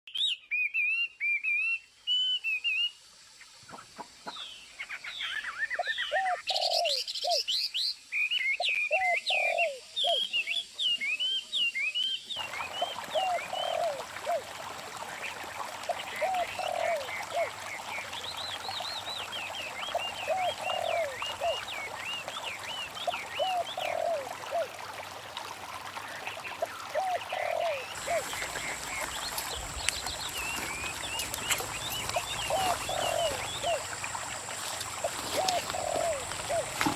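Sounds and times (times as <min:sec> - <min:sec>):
lower bird call: 0:27.0 - 0:36.9
small birds chirping: 0:27.0 - 0:36.9.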